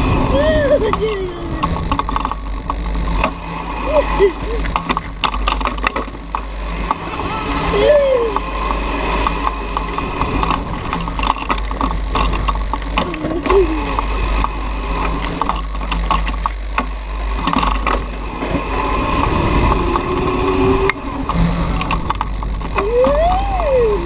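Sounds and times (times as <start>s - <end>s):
electric motor and chain whine: 0.0s - 24.0s
clicks and rattles: 0.7s - 3.5s, 4.3s - 7.1s, 8.2s - 18.6s, 20.8s - 24.0s.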